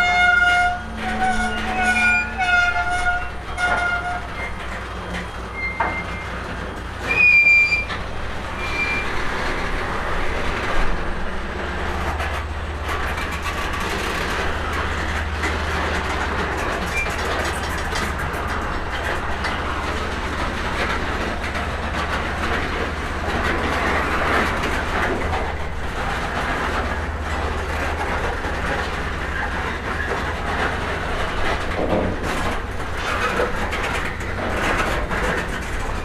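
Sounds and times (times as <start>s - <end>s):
locomotive engine hum: 0.0s - 36.0s
rumble of train wheels: 0.0s - 36.0s.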